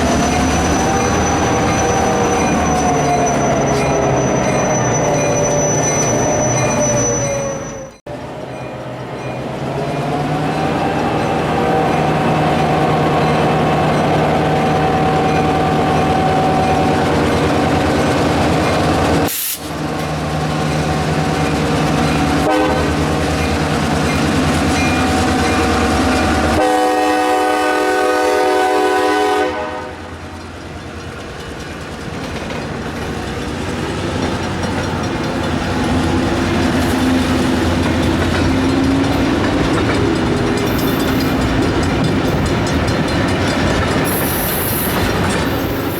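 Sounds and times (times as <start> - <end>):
diesel locomotive running: 0.0 - 45.9
train rolling on rails: 0.0 - 45.9
train horn blast: 22.4 - 23.2, 25.0 - 30.3.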